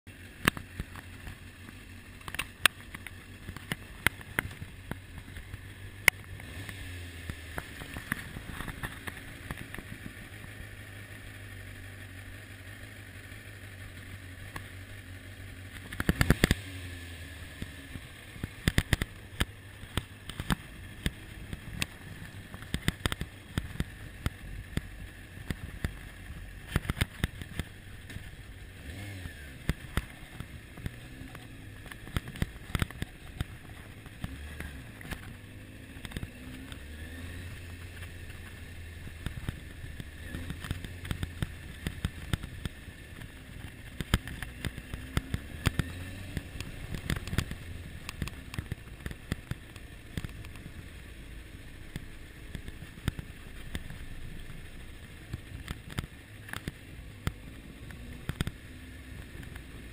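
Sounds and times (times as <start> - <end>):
motorcycle engine idling: 0.1 - 59.9.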